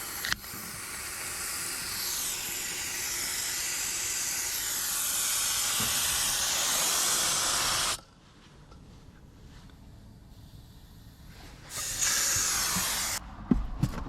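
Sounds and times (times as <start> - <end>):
air hissing out of tire: 0.0 - 8.0, 10.2 - 13.2.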